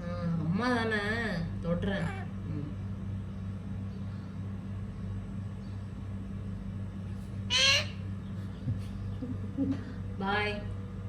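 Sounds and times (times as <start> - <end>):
steady low hum: 0.0 - 11.0
parrot harsh squawk: 7.5 - 8.1.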